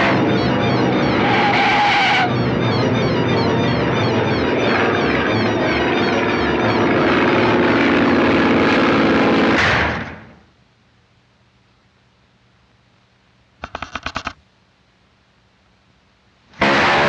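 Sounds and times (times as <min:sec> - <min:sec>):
cartoon propeller plane engine: 0:00.0 - 0:09.1.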